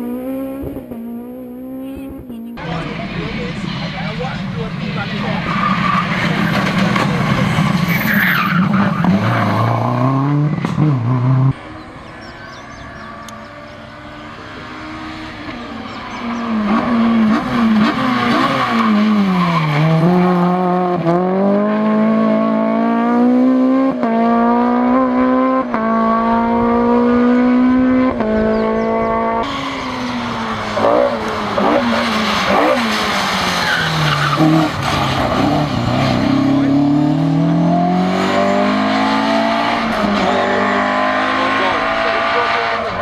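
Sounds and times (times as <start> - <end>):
rally car engine revving: 0.0 - 43.0.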